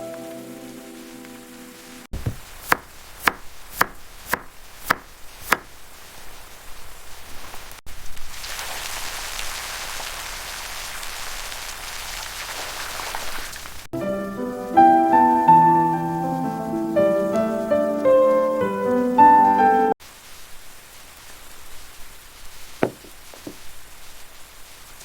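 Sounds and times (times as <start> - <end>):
steady hiss: 0.0 - 10.7, 20.0 - 25.0
knife chopping on cutting board: 2.2 - 5.7, 22.8 - 23.6.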